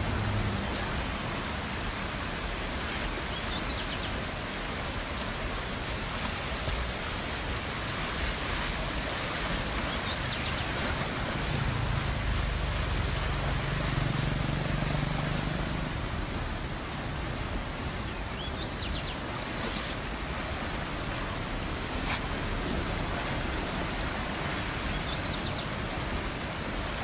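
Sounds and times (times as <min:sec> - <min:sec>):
low engine-like hum: 0:00.0 - 0:02.8, 0:10.0 - 0:18.6
heavy rain falling: 0:00.0 - 0:27.0.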